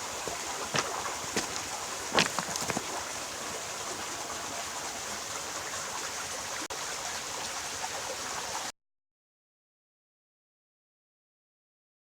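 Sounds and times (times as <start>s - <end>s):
stream water flowing: 0.0s - 8.7s.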